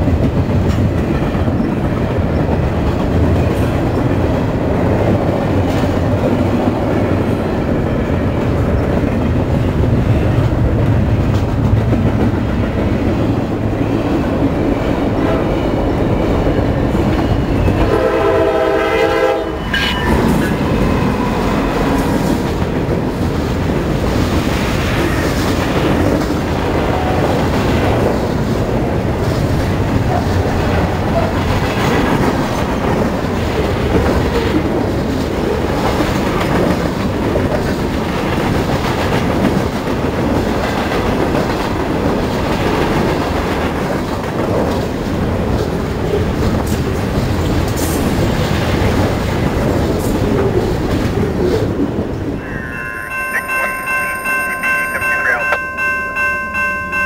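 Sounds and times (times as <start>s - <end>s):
locomotive air horn: 17.8s - 19.8s.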